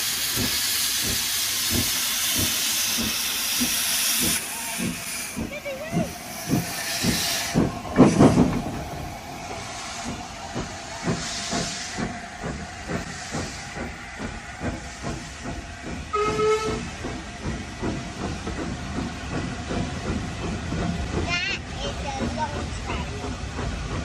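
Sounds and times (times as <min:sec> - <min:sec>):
hissing steam: 0:00.0 - 0:24.0
steam locomotive chuffing: 0:00.0 - 0:24.0
train whistle toot: 0:16.1 - 0:16.8.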